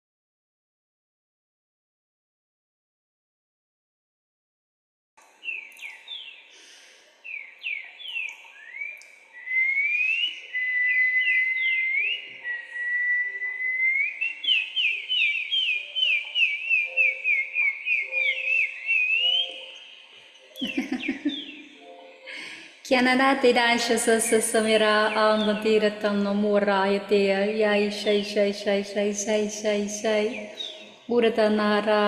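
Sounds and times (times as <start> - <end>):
person whistling a tune: 9.4 - 14.7, 16.1 - 19.7.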